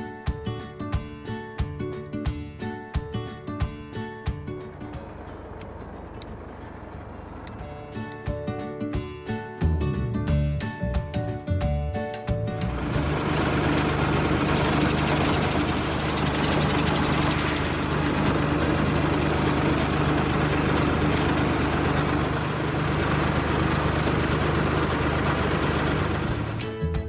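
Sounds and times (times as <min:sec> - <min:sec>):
tractor engine running: 0:04.6 - 0:08.0, 0:12.5 - 0:27.0.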